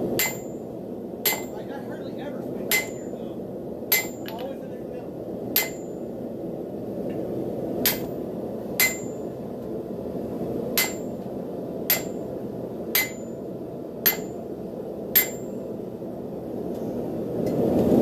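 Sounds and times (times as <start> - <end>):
steady background rush: 0.0 - 18.0
hammer clanging on anvil: 0.2 - 0.5, 1.3 - 1.6, 2.7 - 3.1, 3.9 - 4.5, 5.6 - 5.9, 8.8 - 9.2, 10.8 - 11.1, 11.9 - 12.2, 13.0 - 13.3, 15.2 - 15.5.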